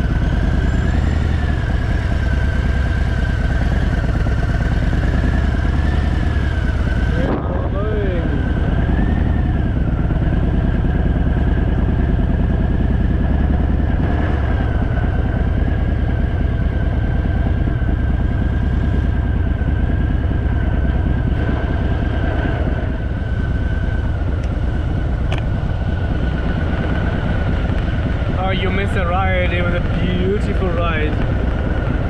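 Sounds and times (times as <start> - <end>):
motorcycle engine low pulsing rumble: 0.0 - 32.0.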